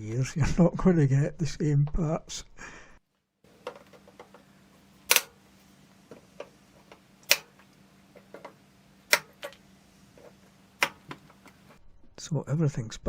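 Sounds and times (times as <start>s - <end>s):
faint steady hum: 0.0s - 13.0s
tools clicking and knocking: 3.5s - 4.4s, 5.1s - 5.4s, 6.1s - 9.6s, 10.2s - 11.8s.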